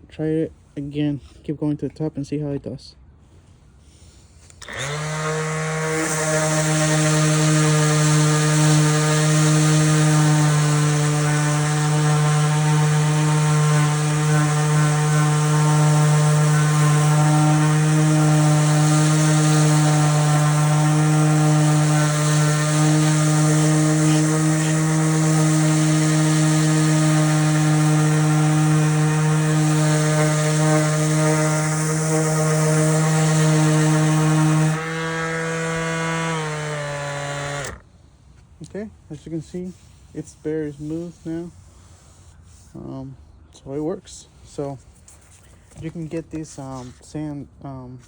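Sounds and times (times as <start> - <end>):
orbit sander humming: 4.5 - 37.9
sanding disc rasping on wood: 4.6 - 37.8, 39.2 - 42.9.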